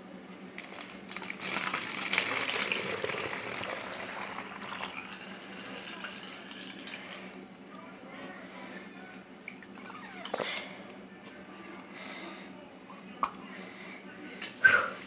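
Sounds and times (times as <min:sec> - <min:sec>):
liquid pouring through a funnel: 0:00.8 - 0:07.2.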